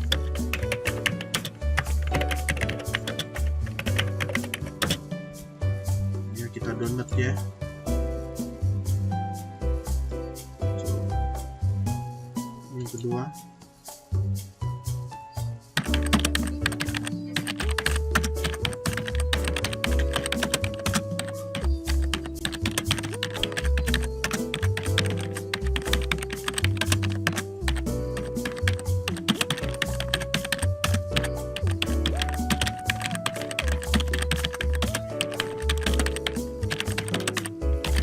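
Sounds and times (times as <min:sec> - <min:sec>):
background music with bass: 0:00.0 - 0:38.0
keyboard typing clicks: 0:15.8 - 0:27.5, 0:28.2 - 0:38.0.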